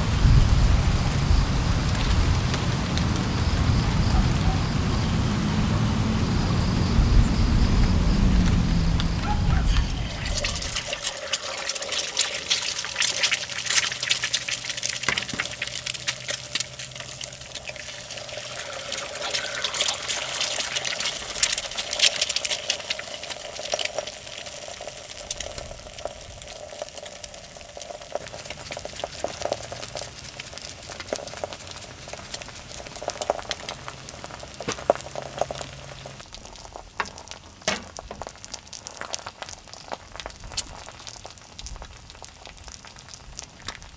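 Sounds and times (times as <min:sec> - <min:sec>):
food sizzling in a pan: 0:08.2 - 0:43.9.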